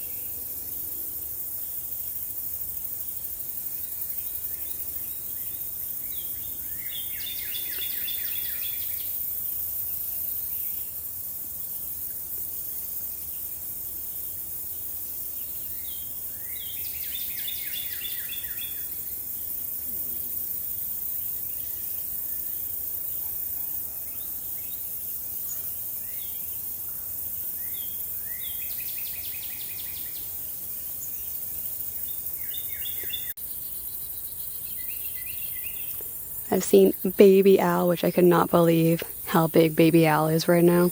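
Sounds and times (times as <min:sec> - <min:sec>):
high insect hiss: 0:00.0 - 0:40.0
songbird singing: 0:03.0 - 0:11.0, 0:13.2 - 0:19.7, 0:27.5 - 0:40.9.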